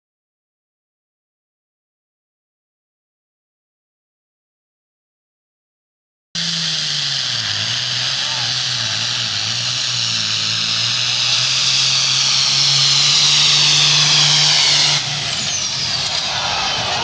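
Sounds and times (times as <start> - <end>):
engine running hard: 6.4 - 17.0
high turbo whine: 6.4 - 17.0.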